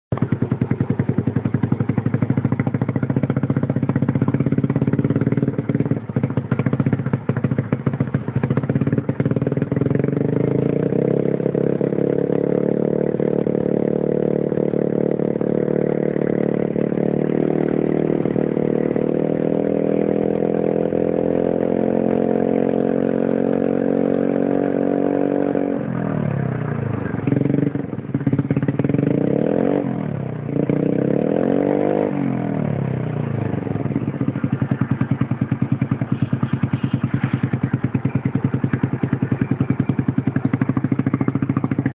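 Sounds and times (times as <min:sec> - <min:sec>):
scooter engine running: 0:00.1 - 0:41.9.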